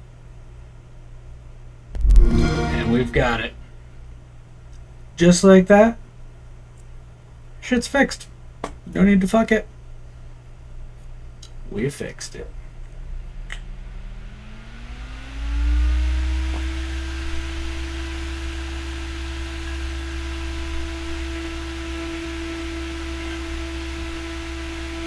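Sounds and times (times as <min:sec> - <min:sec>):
low rumble: 0:01.9 - 0:03.9
motor spinning up and whining: 0:13.6 - 0:25.0.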